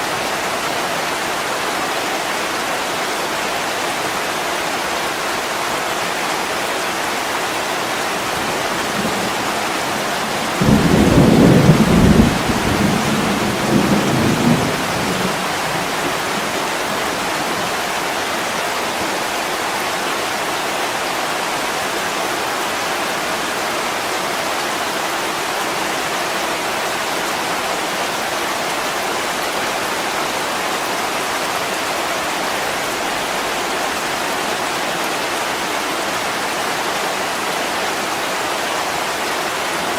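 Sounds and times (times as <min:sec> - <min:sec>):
heavy rain on a window: 0:00.0 - 0:39.9
thunder clap rumbling: 0:08.5 - 0:16.6.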